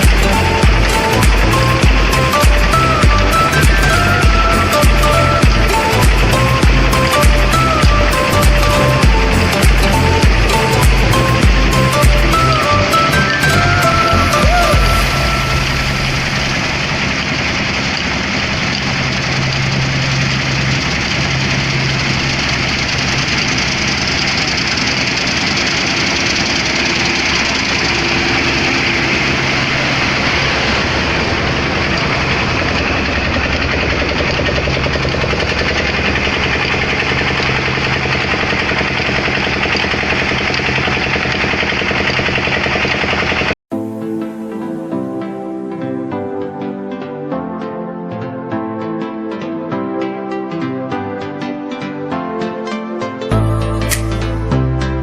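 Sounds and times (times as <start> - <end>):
heavy machinery engine running: 0.0 - 43.6.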